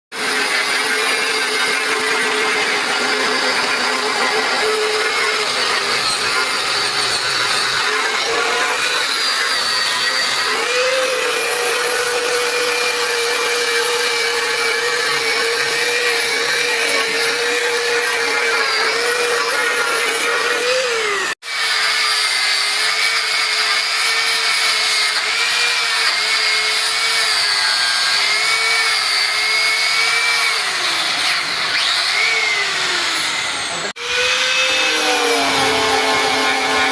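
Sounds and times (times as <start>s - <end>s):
power tool whining on metal: 0.1s - 36.9s.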